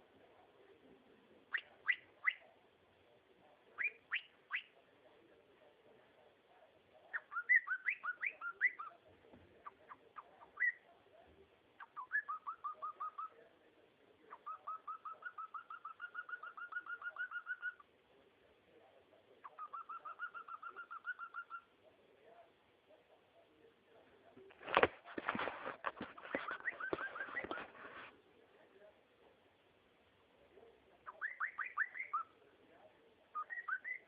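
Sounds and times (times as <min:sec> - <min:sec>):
cockatiel chirping and whistling: 0:01.5 - 0:02.4, 0:03.8 - 0:04.8, 0:07.1 - 0:08.9, 0:09.9 - 0:10.8, 0:11.8 - 0:13.3, 0:14.3 - 0:17.8, 0:19.4 - 0:21.7, 0:26.3 - 0:27.6, 0:31.1 - 0:32.3, 0:33.3 - 0:34.0.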